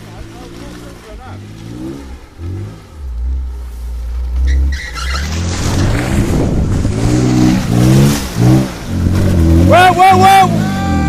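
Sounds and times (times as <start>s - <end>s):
off-road engine revving hard: 0.0s - 3.7s, 4.4s - 11.0s
rush of noise: 5.1s - 11.0s.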